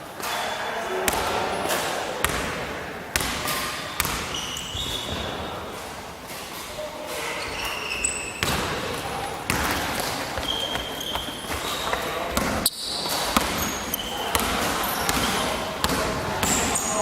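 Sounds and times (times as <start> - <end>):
basketball bouncing on court floor: 1.1 - 1.5, 2.2 - 6.0, 7.4 - 16.9
sneaker squeaks on floor: 3.2 - 17.0.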